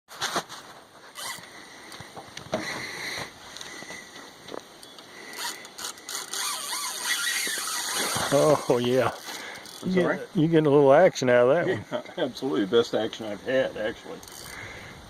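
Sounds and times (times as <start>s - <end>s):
fishing reel ratchet clicking: 5.3s - 9.9s, 14.2s - 14.6s.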